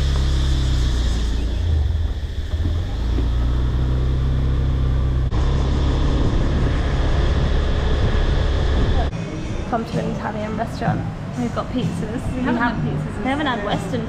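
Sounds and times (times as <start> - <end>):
scooter engine running: 0.0 - 9.1
road and wind noise: 0.0 - 14.0.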